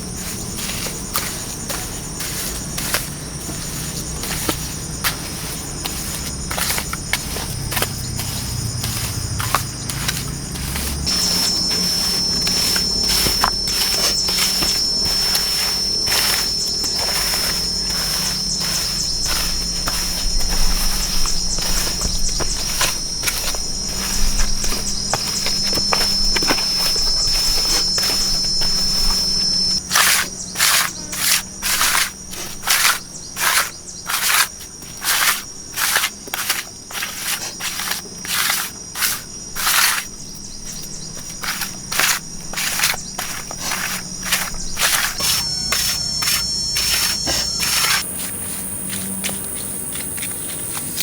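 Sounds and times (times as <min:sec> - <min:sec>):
insects buzzing: 0:00.0 - 0:51.0
regular short noisy strokes: 0:09.9 - 0:34.5.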